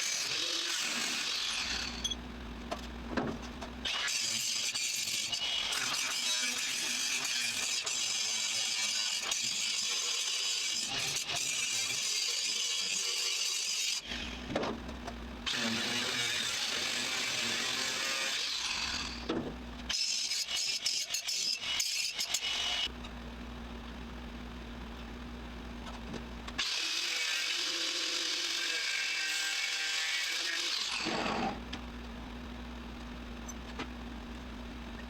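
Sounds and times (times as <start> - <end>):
low steady hum: 1.8 - 3.9, 22.8 - 26.6, 31.1 - 35.0
harsh hissing tool noise: 26.6 - 31.6.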